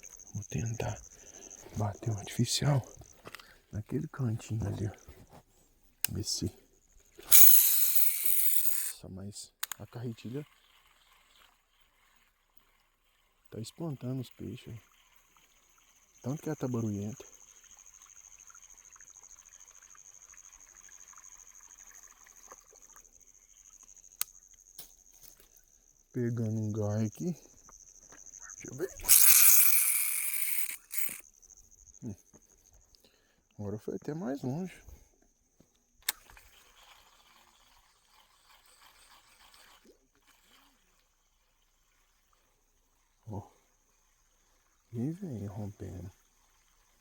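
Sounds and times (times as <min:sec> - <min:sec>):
fishing reel grinding: 0:00.0 - 0:03.5, 0:05.9 - 0:09.0, 0:09.6 - 0:32.0, 0:36.0 - 0:47.0
man talking: 0:00.4 - 0:01.1, 0:01.7 - 0:03.0, 0:03.7 - 0:05.0, 0:06.1 - 0:06.6, 0:08.9 - 0:10.4, 0:13.6 - 0:14.8, 0:16.2 - 0:17.2, 0:26.2 - 0:27.4, 0:28.5 - 0:29.1, 0:33.6 - 0:34.9, 0:45.0 - 0:46.1
sharp click: 0:29.0 - 0:31.2.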